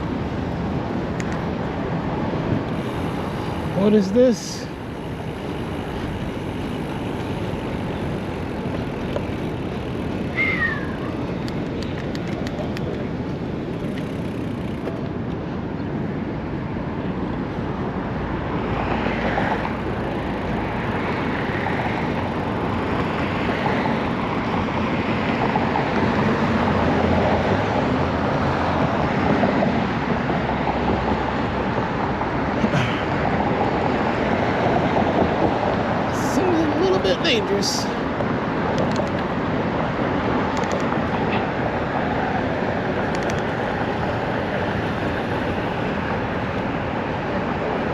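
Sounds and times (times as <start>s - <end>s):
city traffic: 0.0s - 47.9s
wind and road noise: 0.0s - 47.9s.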